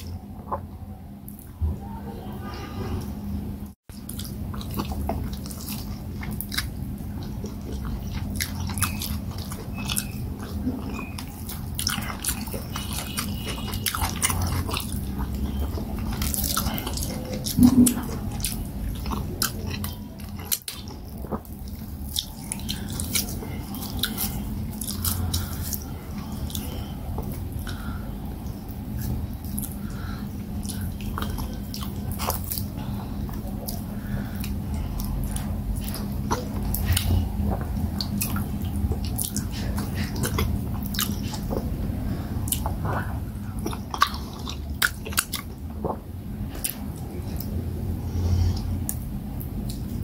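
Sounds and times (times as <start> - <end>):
close chewing: 3.9 - 47.6.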